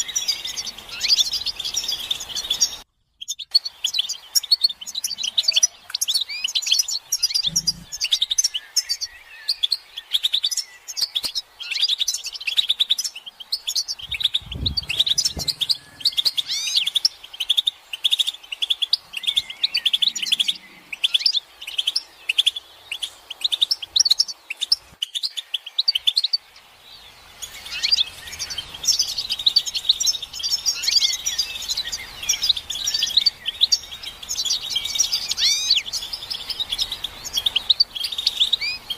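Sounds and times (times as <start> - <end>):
goldfinches twittering: 0.0 - 38.9.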